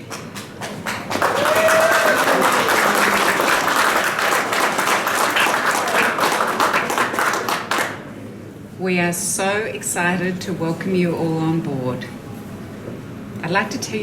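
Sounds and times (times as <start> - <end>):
crowd applauding: 0.0 - 8.2
person cheering: 1.3 - 3.6.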